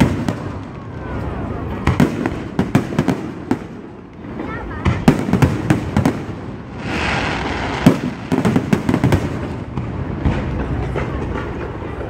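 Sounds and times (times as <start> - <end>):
firework bangs: 0.0 - 12.0
firework hiss: 5.4 - 10.8.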